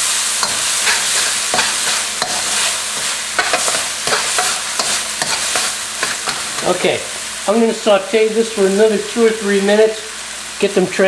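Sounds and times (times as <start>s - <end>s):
aromatics sizzling in oil: 0.0s - 11.0s
metal spoon scraping a wok: 0.4s - 6.8s.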